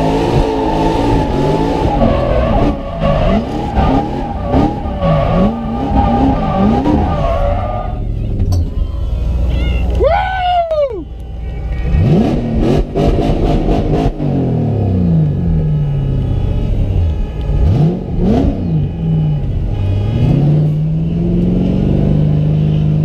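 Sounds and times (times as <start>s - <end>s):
car engine revving hard: 0.0s - 8.0s, 11.9s - 15.7s, 17.6s - 19.3s, 20.0s - 23.0s.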